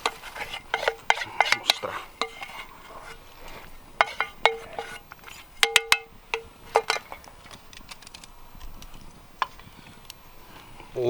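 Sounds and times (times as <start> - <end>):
utensil clinking on metal pan: 0.0 - 7.7.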